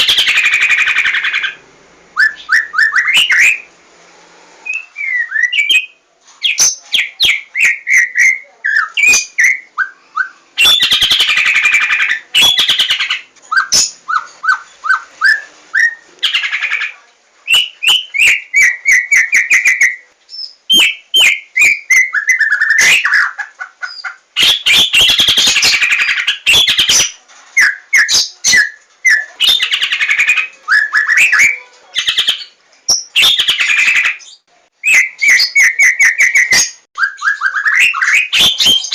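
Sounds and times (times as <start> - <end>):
harsh rasping bird calls: 0.0 - 1.6, 4.6 - 38.9
bird singing whistled notes: 2.2 - 3.7, 4.6 - 11.6, 26.4 - 38.9.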